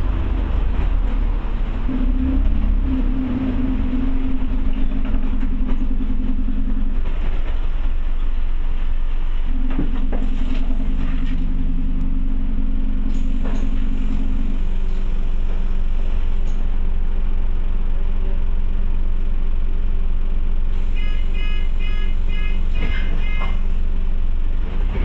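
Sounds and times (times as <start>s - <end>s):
bus engine and road rumble: 0.0s - 25.0s
drone: 0.0s - 25.0s.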